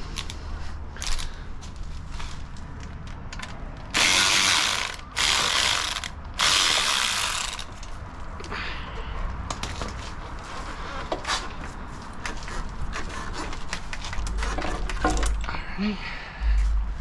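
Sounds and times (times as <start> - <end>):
ratchet wrench clicking: 1.0 - 1.3, 3.4 - 7.9.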